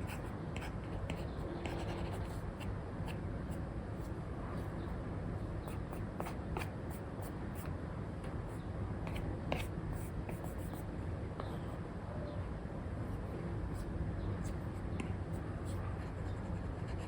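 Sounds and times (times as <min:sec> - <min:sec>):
stylus tapping and scratching on screen: 0:00.0 - 0:03.2.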